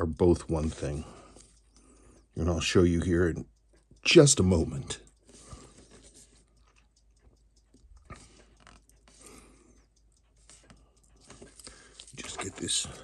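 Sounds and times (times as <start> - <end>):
small tool clicks and taps: 3.5 - 9.3.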